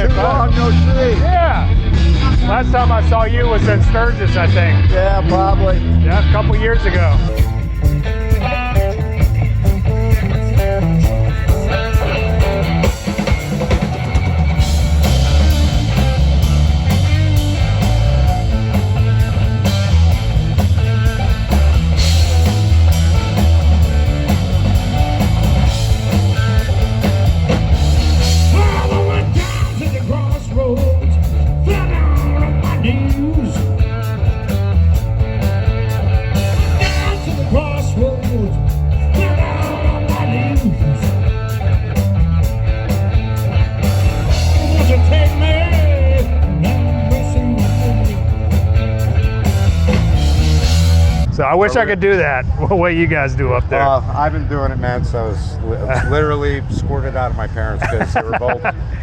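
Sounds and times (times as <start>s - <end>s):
blues-rock band playing live: 0.0s - 51.3s
person singing: 28.4s - 34.1s, 36.8s - 41.2s, 44.5s - 48.4s.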